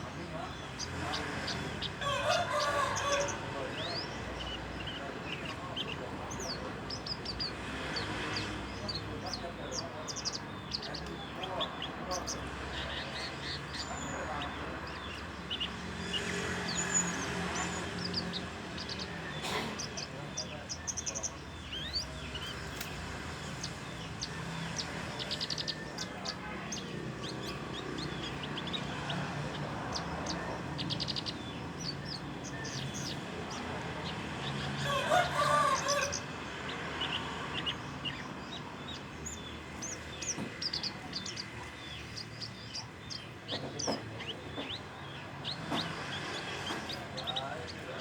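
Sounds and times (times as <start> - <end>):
bird chirps and trills: 0.0 - 48.0
rooster crowing: 2.0 - 3.6, 34.8 - 36.3.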